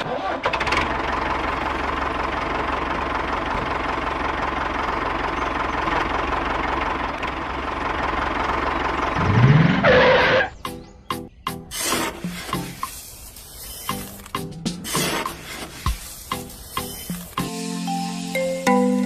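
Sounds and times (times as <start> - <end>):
small diesel engine knocking: 0.5 - 9.5.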